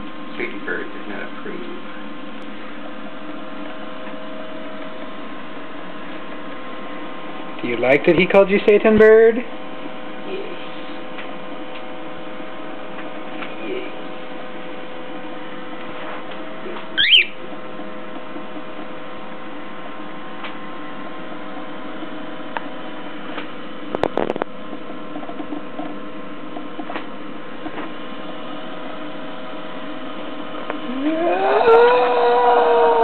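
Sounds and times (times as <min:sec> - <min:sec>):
electrical hum: 0:00.0 - 0:33.0
bird chirp: 0:17.0 - 0:17.4.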